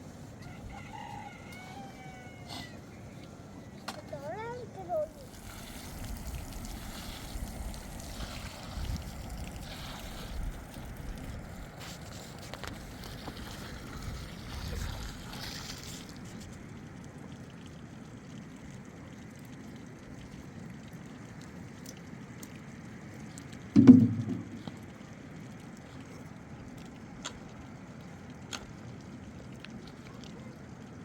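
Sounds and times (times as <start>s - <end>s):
outdoor hiss: 0.0s - 16.7s
wind buffeting microphone: 5.6s - 11.8s
faint knocks: 23.8s - 24.8s.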